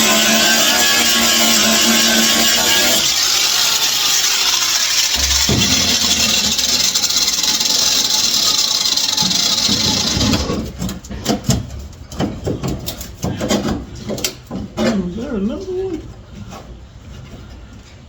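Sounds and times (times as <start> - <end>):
power tool on sheet metal: 0.0 - 10.7
metal knocks and clinks: 5.2 - 8.4.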